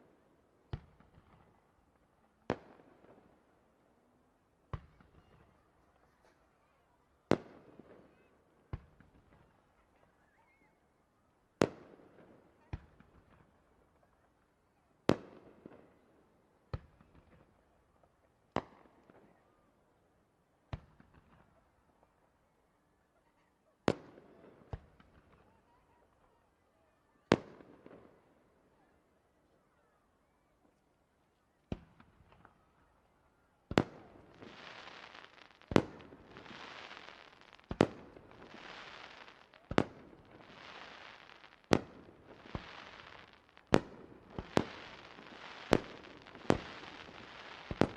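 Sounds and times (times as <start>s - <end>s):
firework shells bursting: 34.1s - 47.9s.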